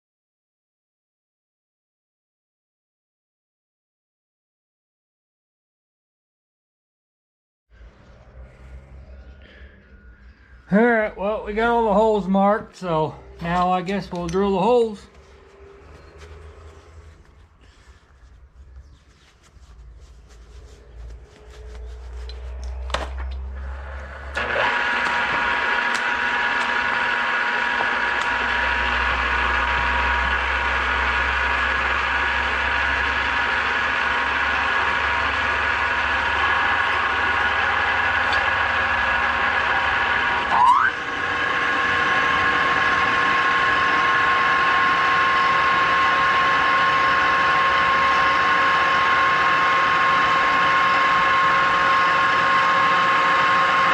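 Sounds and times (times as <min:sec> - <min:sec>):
electric drill drilling steel: 0:22.2 - 0:53.9.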